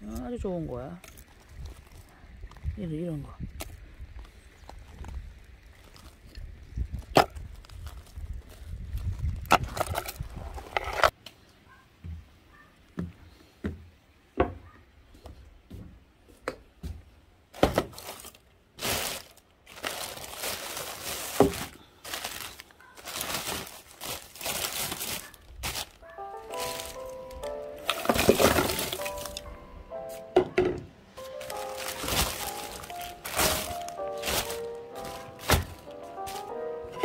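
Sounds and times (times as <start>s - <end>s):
paper crumpling and rustling: 17.6s - 29.5s, 31.2s - 37.0s
wood pieces knocking: 27.8s - 29.5s.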